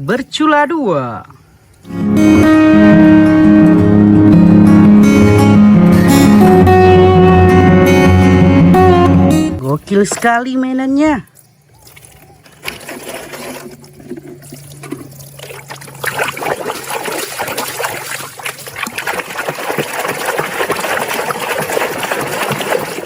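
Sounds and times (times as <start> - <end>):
water splashing and trickling: 9.6 - 23.0.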